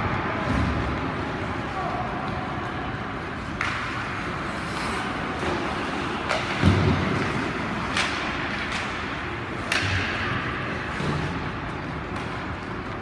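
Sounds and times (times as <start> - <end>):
hockey stick clacking on puck: 3.5 - 11.3.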